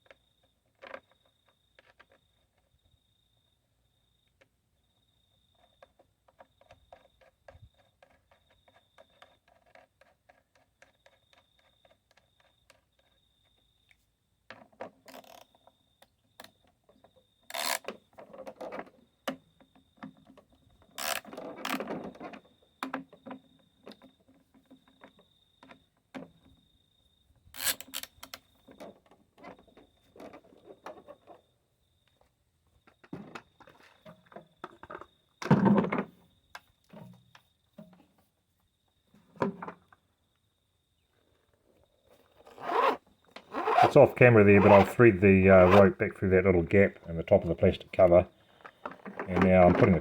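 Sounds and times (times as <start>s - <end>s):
tool scraping and knocks: 42.5s - 48.2s.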